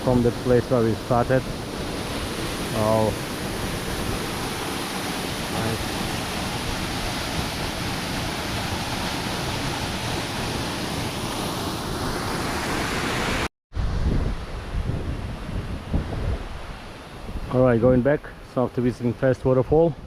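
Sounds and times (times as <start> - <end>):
waterfall rushing: 0.0 - 13.5
wind buffeting microphone: 13.7 - 18.3.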